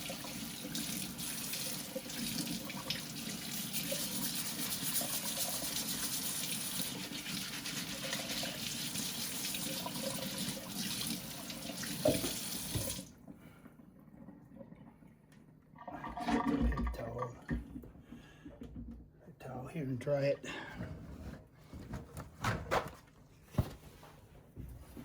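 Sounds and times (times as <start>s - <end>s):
water running from sink tap: 0.0s - 13.1s
knocks and rustles from handling: 20.8s - 25.0s.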